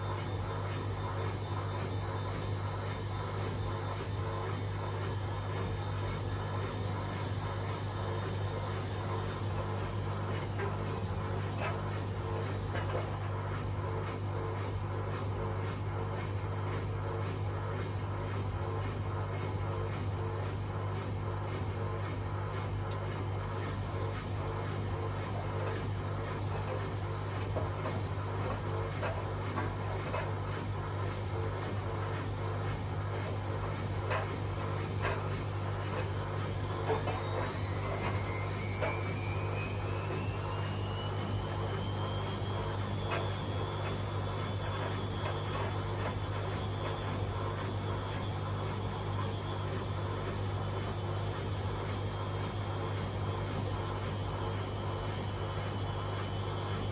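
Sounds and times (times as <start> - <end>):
washing machine spinning: 0.0 - 56.9
motor whine rising: 35.9 - 54.0.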